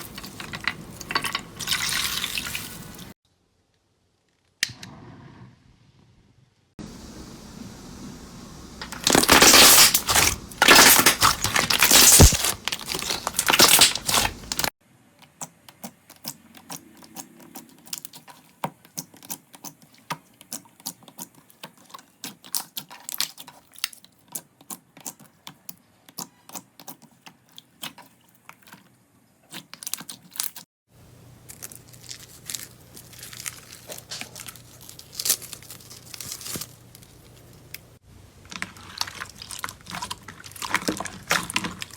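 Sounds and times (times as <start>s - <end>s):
slime squishing and crackling: 8.9s - 14.7s, 15.8s - 28.8s, 31.4s - 41.9s.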